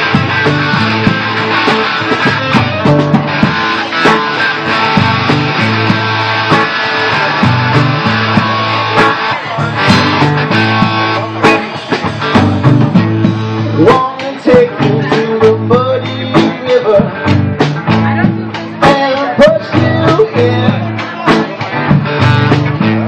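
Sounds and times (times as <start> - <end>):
lead electric guitar: 0.0 - 23.0
live rock band: 0.0 - 23.0
sharp drum hits: 9.8 - 13.4.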